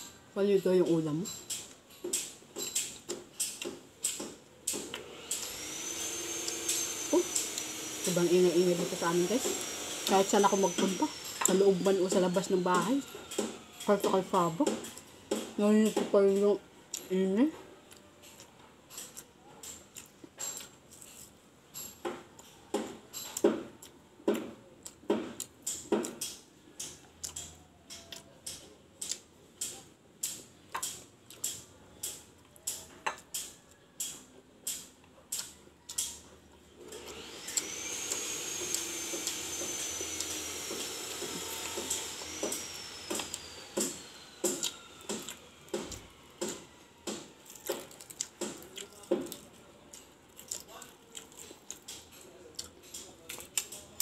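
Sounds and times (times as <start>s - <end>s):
power tool whine: 4.8s - 16.0s, 36.8s - 48.6s
chewing and mouth clicks: 17.9s - 21.3s, 23.2s - 36.2s, 47.5s - 54.0s.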